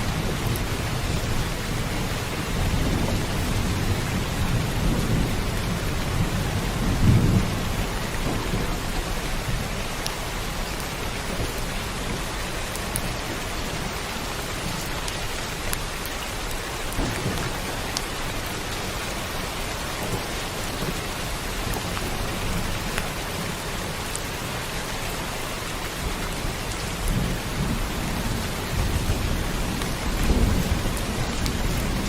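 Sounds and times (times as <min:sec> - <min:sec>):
low rolling thunder: 0:00.0 - 0:24.1, 0:26.0 - 0:32.0
heavy rain: 0:00.0 - 0:32.0
single raindrops: 0:07.0 - 0:23.2.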